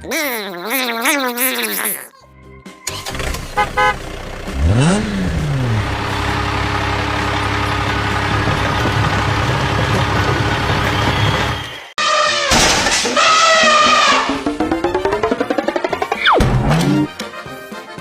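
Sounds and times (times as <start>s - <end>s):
vehicle engine starting and running: 2.7s - 11.8s, 12.7s - 17.2s.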